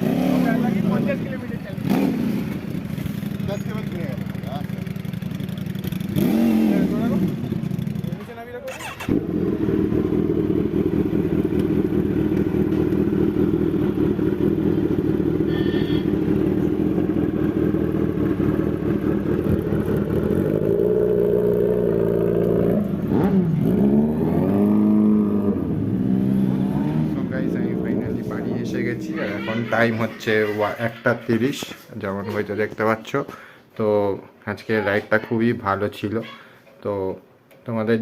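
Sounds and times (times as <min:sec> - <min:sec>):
motorcycle engine running: 0:00.0 - 0:29.7.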